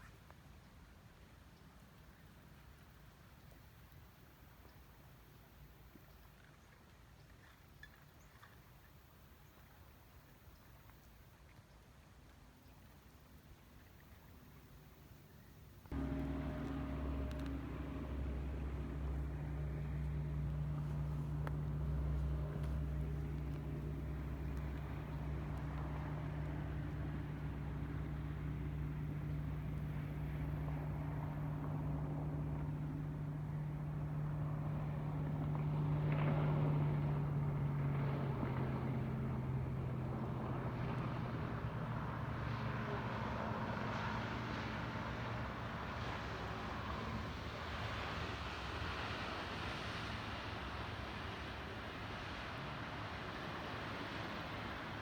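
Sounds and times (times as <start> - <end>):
vehicle engine drone: 15.3 - 55.0
road noise: 15.7 - 55.0.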